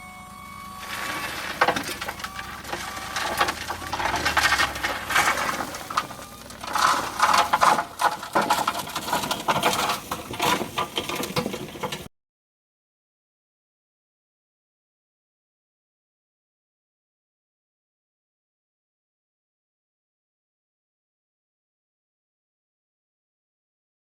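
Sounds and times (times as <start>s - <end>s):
crushed stone crunching: 0.8s - 12.1s.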